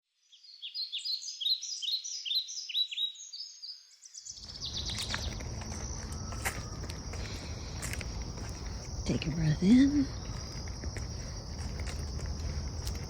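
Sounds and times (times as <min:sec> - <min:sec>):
songbird chirping: 0:00.1 - 0:13.0
insect trill: 0:04.0 - 0:13.0.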